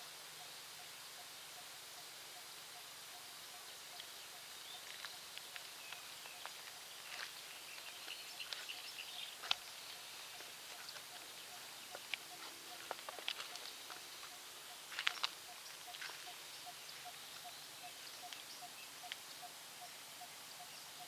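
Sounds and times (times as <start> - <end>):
faint birds chirping: 0.0 - 21.0
steady hiss: 0.0 - 21.0.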